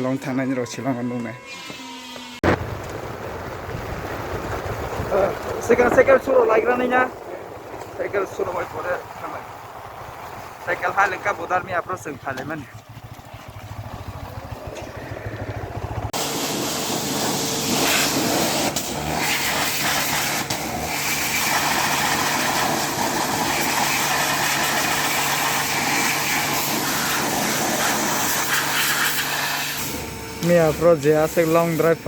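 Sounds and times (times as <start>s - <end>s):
loud steady rushing noise: 2.4s - 12.2s
vehicle engine running: 2.4s - 28.3s.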